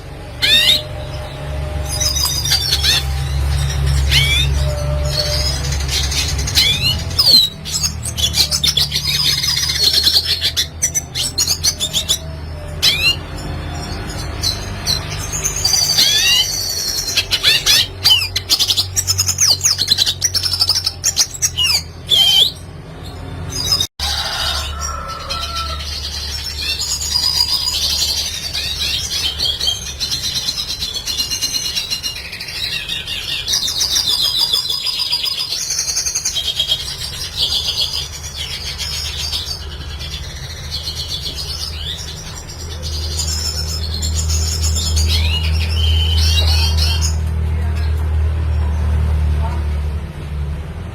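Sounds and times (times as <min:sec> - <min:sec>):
bird twittering song: 0:00.0 - 0:23.9, 0:24.5 - 0:48.7.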